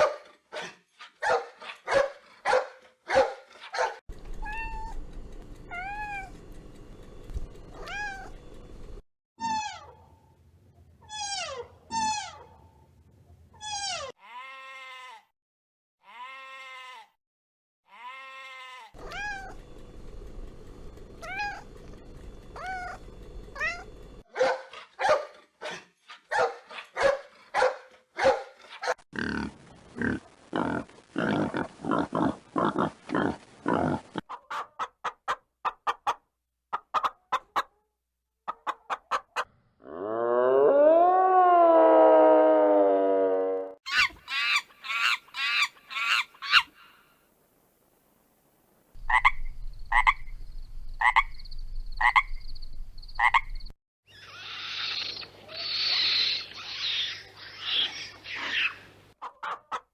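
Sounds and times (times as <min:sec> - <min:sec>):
rising animal calls: 0:19.0 - 0:19.6, 0:22.5 - 0:23.0, 0:39.9 - 0:47.0, 0:49.0 - 0:58.8
rapid pulsed livestock calls: 0:49.0 - 0:53.7.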